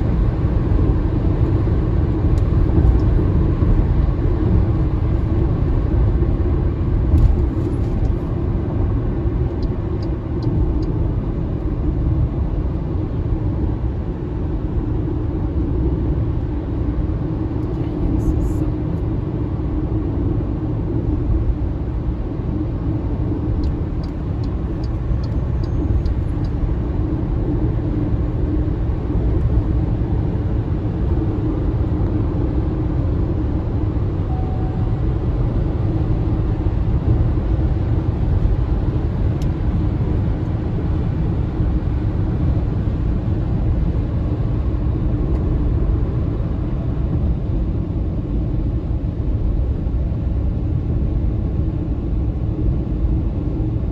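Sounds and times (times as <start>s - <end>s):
road and tyre rumble: 0.0s - 53.9s.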